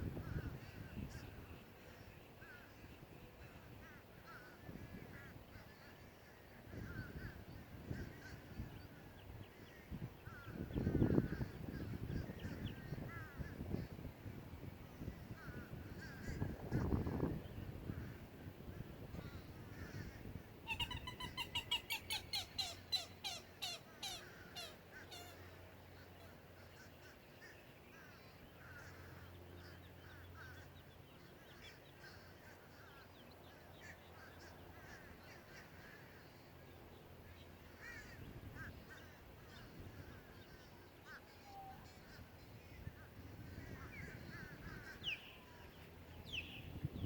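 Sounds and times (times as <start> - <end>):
faint birds chirping: 0.0 - 47.0
bird calling harshly: 20.7 - 25.5.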